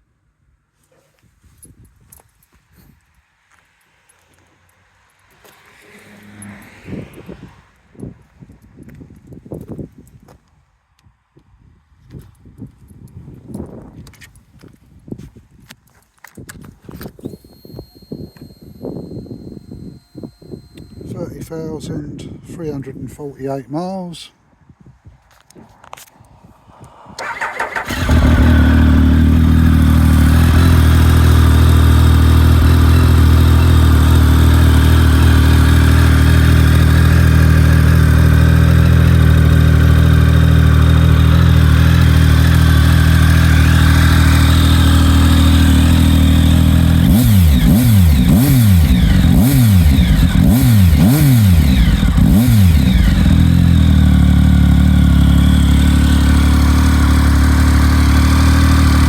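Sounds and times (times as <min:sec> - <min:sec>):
motorcycle engine starting and idling: 0:16.5 - 0:21.8, 0:26.8 - 0:59.0
motorcycle engine revving: 0:26.8 - 0:59.0.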